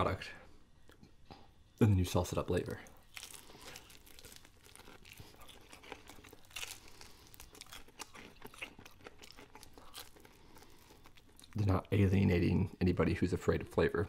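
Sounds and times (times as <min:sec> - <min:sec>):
crunchy chewing of fried chicken: 0:02.6 - 0:12.1.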